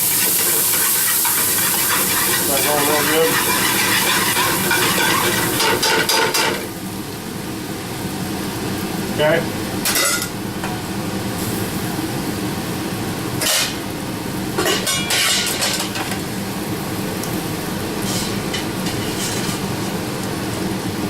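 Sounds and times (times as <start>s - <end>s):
stovetop cooking hum and hiss: 0.0s - 21.0s
metal utensil clattering on pan: 0.4s - 6.6s, 9.9s - 10.3s, 13.4s - 13.8s, 14.6s - 16.1s.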